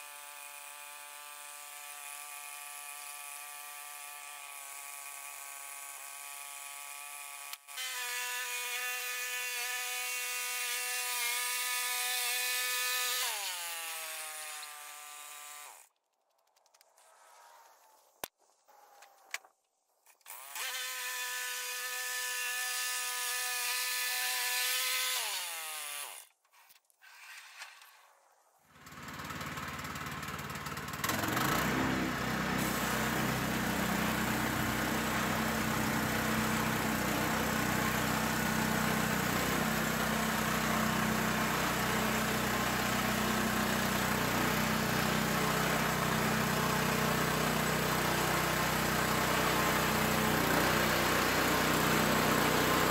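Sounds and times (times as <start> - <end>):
sawmill engine running: 28.8 - 52.9.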